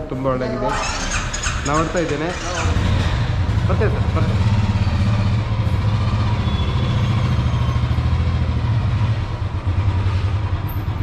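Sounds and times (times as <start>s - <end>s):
motorcycle engine humming: 0.0s - 11.0s
road noise: 0.0s - 11.0s.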